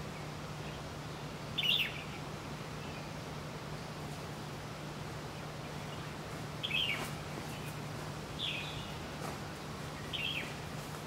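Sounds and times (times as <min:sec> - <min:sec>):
small bird chirping: 0:01.6 - 0:02.2, 0:05.6 - 0:09.0, 0:09.6 - 0:10.6.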